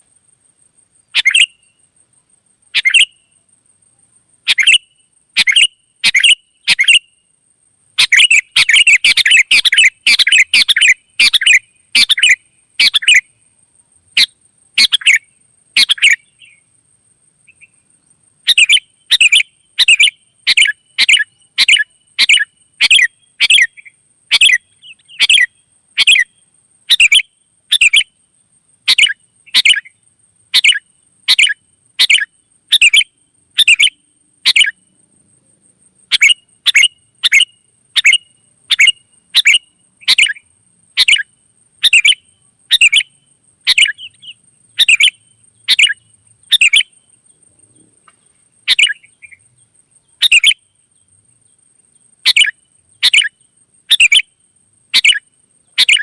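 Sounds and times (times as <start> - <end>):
bird calling sharp notes: 43.7 - 46.9, 50.2 - 50.6, 52.3 - 53.3, 53.9 - 54.2, 55.0 - 55.2, 55.8 - 56.0.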